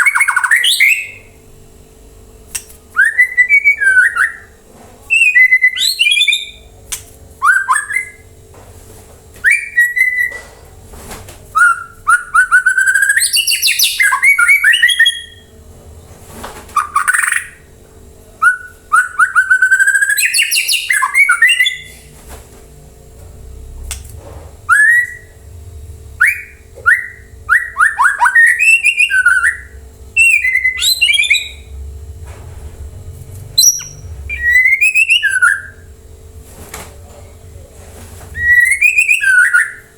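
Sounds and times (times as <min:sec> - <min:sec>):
bird singing whistled phrases: 0:00.0 - 0:01.4, 0:03.0 - 0:06.7, 0:07.4 - 0:08.2, 0:09.4 - 0:10.4, 0:11.6 - 0:15.5, 0:16.8 - 0:17.6, 0:18.4 - 0:22.1, 0:24.7 - 0:25.4, 0:26.2 - 0:31.8, 0:33.6 - 0:35.9, 0:38.4 - 0:39.9.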